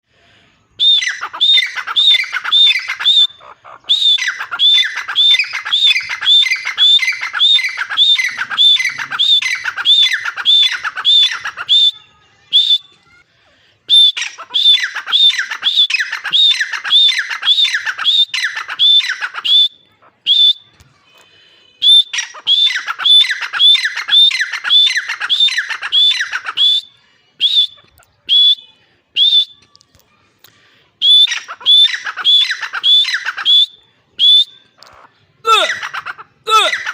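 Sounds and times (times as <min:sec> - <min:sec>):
francolin calling: 0:00.8 - 0:11.9.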